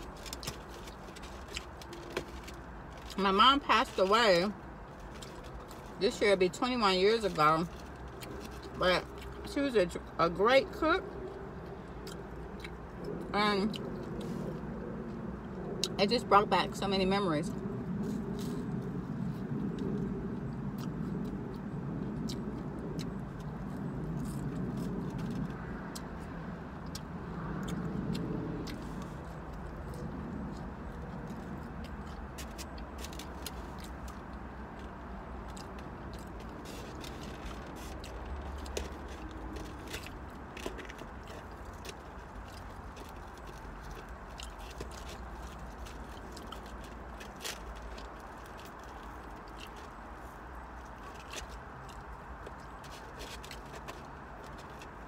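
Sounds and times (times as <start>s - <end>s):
low hum inside a car: 0.0s - 55.0s
chewing mouth sounds: 11.0s - 16.0s, 17.5s - 55.0s.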